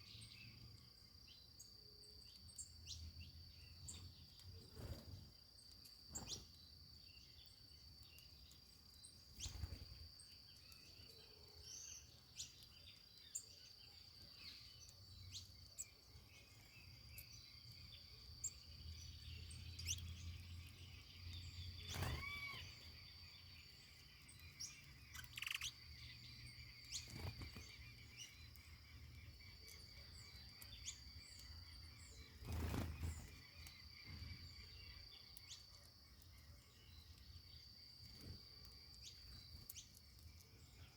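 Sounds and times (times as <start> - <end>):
high insect trill: 11.8 - 40.8
short bird chirps: 21.8 - 23.0, 24.6 - 25.8.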